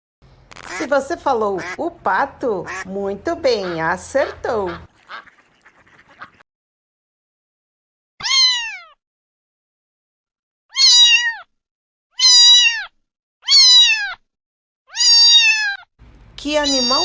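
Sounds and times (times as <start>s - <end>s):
cat meowing: 8.2s - 9.0s, 10.7s - 11.5s, 12.2s - 14.2s, 14.9s - 17.0s.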